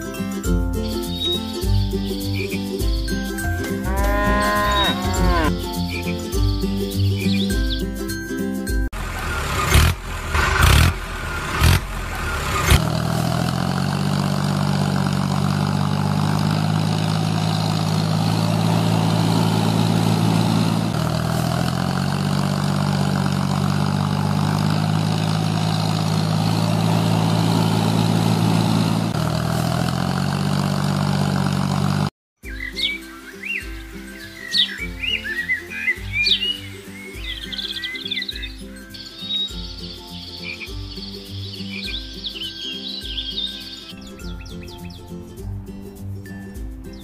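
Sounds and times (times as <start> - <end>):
engine running: 8.9 - 32.1.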